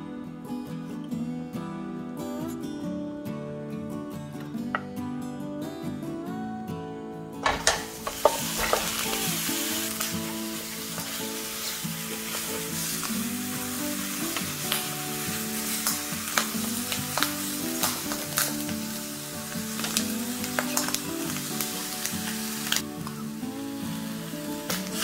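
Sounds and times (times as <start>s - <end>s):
soft acoustic guitar music: 0.0s - 25.0s
meat sizzling in a hot pan: 7.4s - 25.0s.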